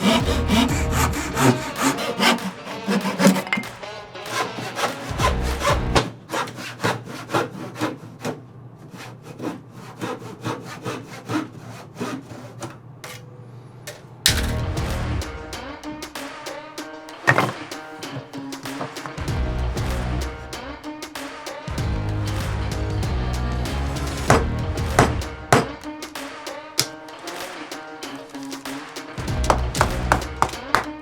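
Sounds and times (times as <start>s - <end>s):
hand saw cutting wood: 0.0s - 13.2s, 17.3s - 19.2s, 24.0s - 31.0s.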